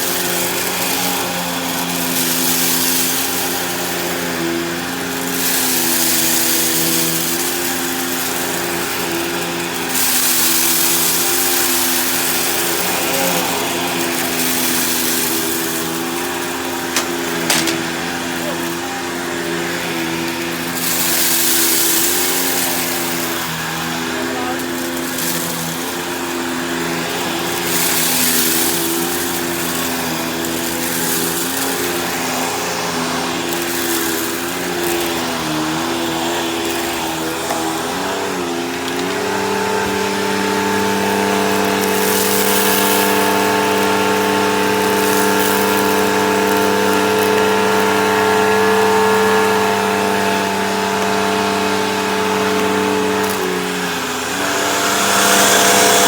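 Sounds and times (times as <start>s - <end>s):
vacuum cleaner motor hum: 0.0s - 56.0s
rushing air: 54.0s - 56.0s.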